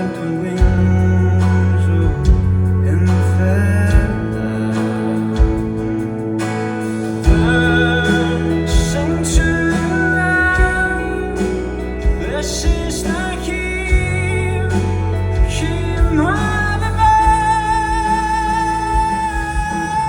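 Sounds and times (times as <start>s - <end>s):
bass and guitar chords: 0.0s - 20.0s
person singing: 0.0s - 20.0s
drum hits: 5.4s - 10.0s.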